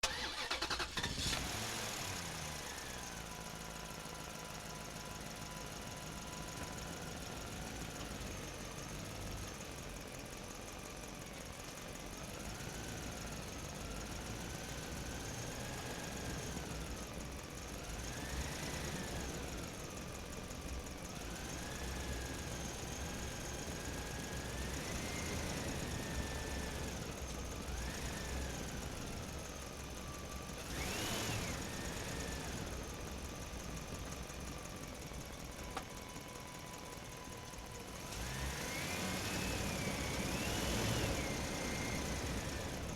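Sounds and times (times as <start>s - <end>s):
motor whining and revving: 30.6s - 32.6s, 38.0s - 42.9s.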